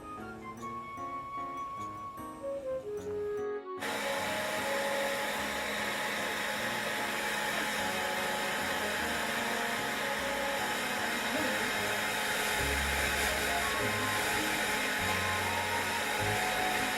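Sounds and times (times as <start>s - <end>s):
background music: 0.0s - 16.9s
hair dryer blowing: 3.8s - 16.9s.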